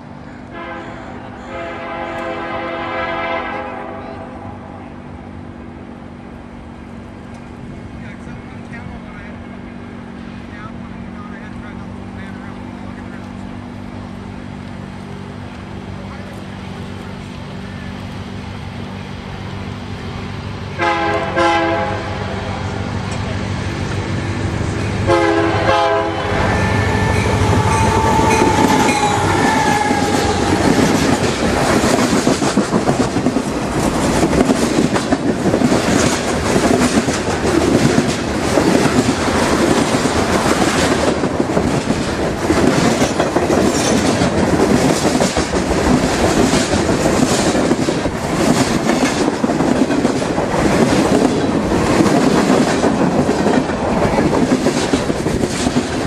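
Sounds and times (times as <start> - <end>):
train horn chord: 0.4 - 4.9, 20.8 - 22.6, 25.0 - 30.9
train wheels clattering: 22.8 - 56.0.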